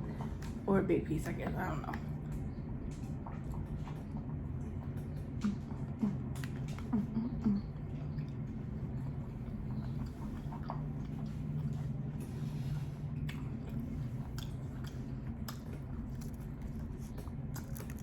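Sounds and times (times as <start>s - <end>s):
steady low hum: 0.0s - 18.0s
wet chewing sounds: 1.3s - 18.0s
small mouth clicks: 5.3s - 8.4s.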